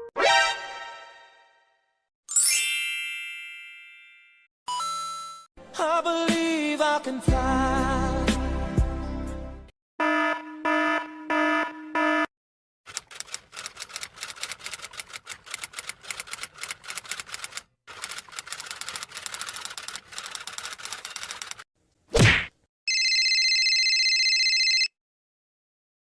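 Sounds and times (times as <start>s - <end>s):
fast typing clicks: 12.9s - 21.6s.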